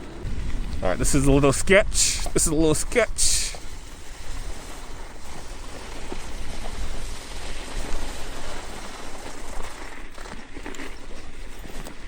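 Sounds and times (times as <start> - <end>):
wind buffeting microphone: 0.0 - 9.6
tyres through snow and slush: 0.0 - 12.0.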